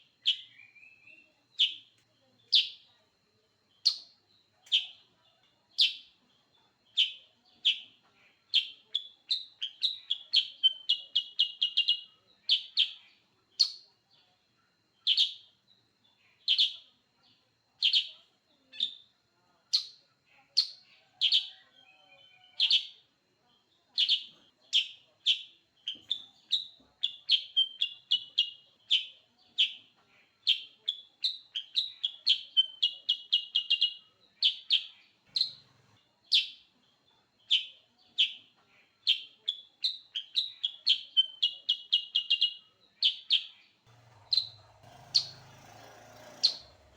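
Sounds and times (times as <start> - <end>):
bird chirping and trilling: 0.2 - 1.9, 24.0 - 29.8, 30.4 - 36.6, 37.5 - 46.9.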